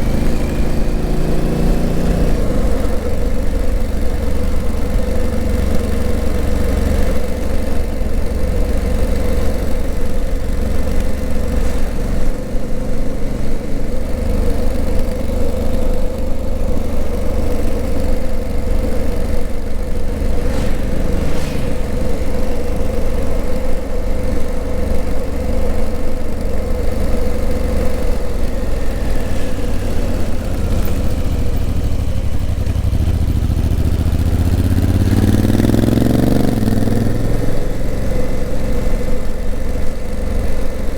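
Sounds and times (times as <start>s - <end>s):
motorcycle engine running and accelerating: 0.0s - 40.9s.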